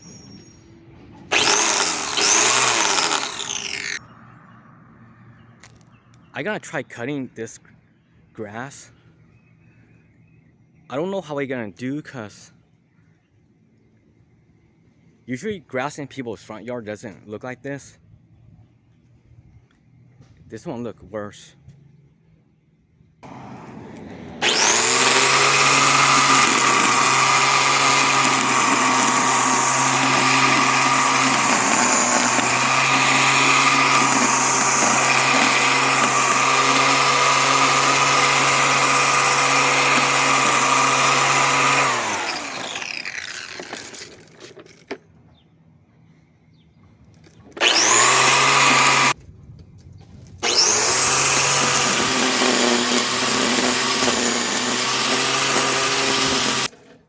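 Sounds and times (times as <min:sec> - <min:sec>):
electric lawn mower whining: 0:00.0 - 0:04.2, 0:23.2 - 0:45.0, 0:47.5 - 0:49.2, 0:50.4 - 0:57.0.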